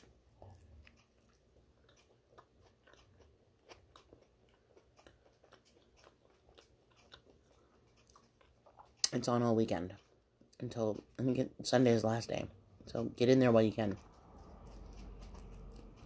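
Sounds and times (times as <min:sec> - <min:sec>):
faint chewing with mouth clicks: 0:00.0 - 0:16.0.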